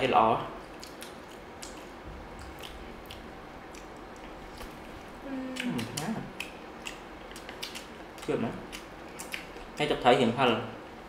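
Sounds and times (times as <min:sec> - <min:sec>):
people chewing: 0:00.6 - 0:09.9
person humming: 0:05.2 - 0:06.4.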